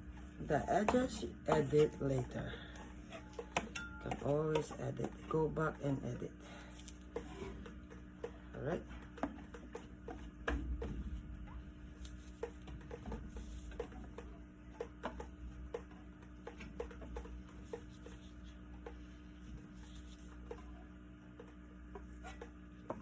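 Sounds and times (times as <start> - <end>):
low hum: 0.0 - 16.0
light taps and rubbing: 16.4 - 20.6.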